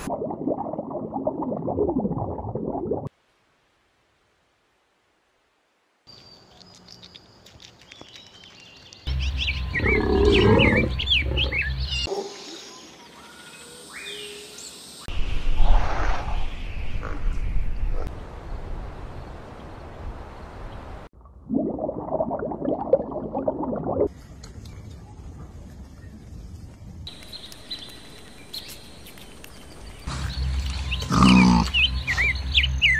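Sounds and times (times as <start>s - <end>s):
rising animal calls: 9.7s - 11.8s.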